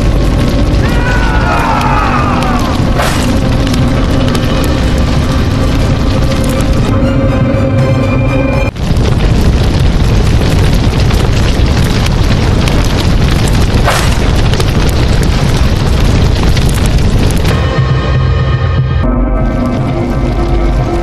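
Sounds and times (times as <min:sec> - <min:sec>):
explosion-like sound effect: 0:00.0 - 0:06.8, 0:08.7 - 0:21.0
background music: 0:00.0 - 0:08.8, 0:17.5 - 0:21.0.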